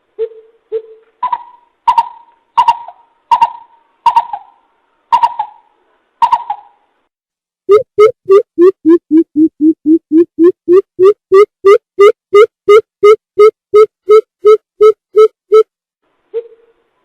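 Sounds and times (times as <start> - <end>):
recorded bird hoots: 0.2 - 6.8, 16.3 - 16.9.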